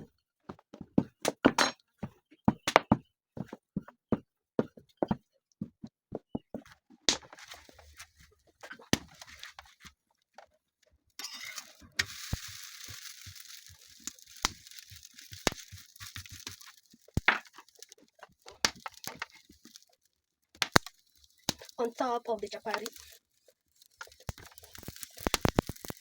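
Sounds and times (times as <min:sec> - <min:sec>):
frying sizzle in oil: 0:11.2 - 0:26.0.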